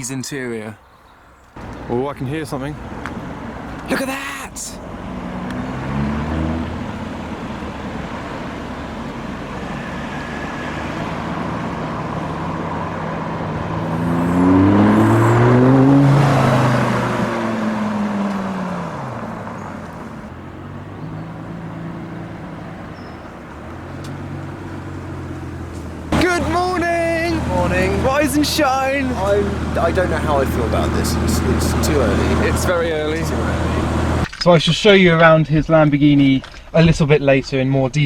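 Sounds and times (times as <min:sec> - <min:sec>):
sports car engine: 0:01.6 - 0:34.3.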